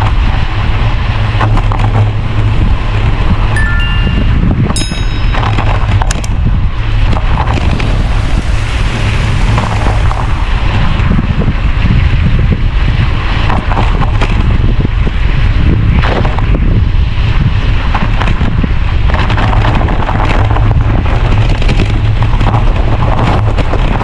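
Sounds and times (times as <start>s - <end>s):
wind buffeting microphone: 4.3s - 24.0s
sharp crackles: 7.1s - 11.8s.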